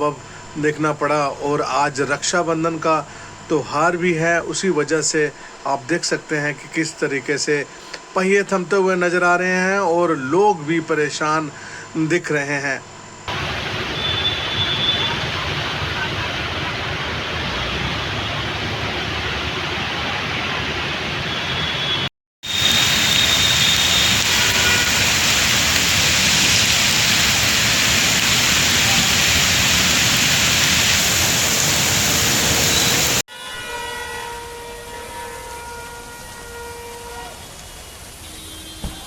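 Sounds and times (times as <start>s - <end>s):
heavy rain hissing: 13.3s - 33.2s
traffic on wet street: 13.3s - 33.2s, 33.8s - 39.0s
horn tones: 21.3s - 25.3s, 32.6s - 39.0s.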